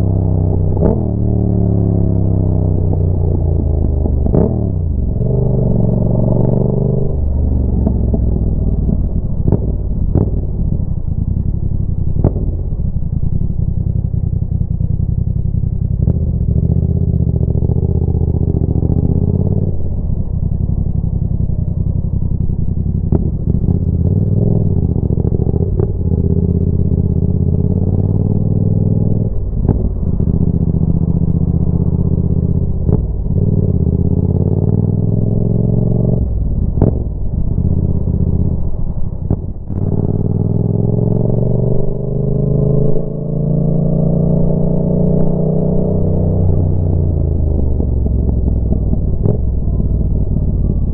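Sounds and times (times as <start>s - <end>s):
motorcycle engine revving: 0.0s - 50.9s
exhaust pops and cracks: 0.1s - 35.4s, 36.0s - 50.9s.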